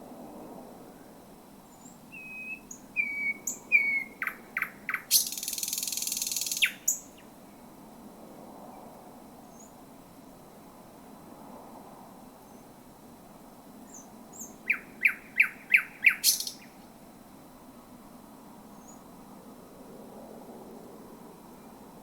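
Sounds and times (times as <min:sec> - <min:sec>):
thrush nightingale singing: 0:01.6 - 0:07.4, 0:09.5 - 0:09.8, 0:13.8 - 0:17.0, 0:18.7 - 0:19.1.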